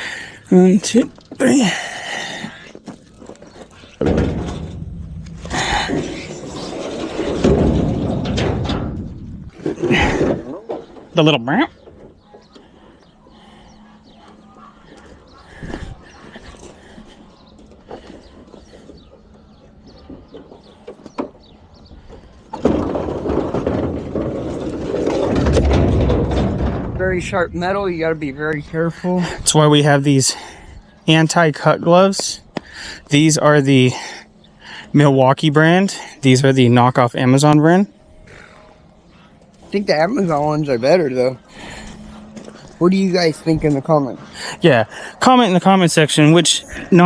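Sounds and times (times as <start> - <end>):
metal clunks: 3.5 - 11.1, 19.9 - 29.1
heavy rumbling scrape: 3.7 - 10.5, 22.0 - 30.9.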